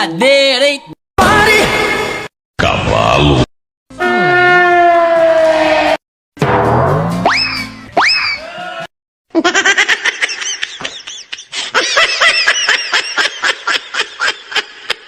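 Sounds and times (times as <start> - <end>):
high-pitched rapid laughing: 9.3 - 15.0.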